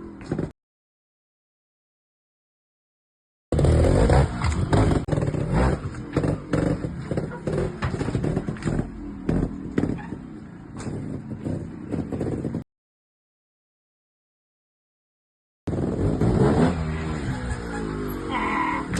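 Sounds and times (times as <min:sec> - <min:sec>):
motorcycle engine revving: 0:03.5 - 0:12.6, 0:15.7 - 0:18.9.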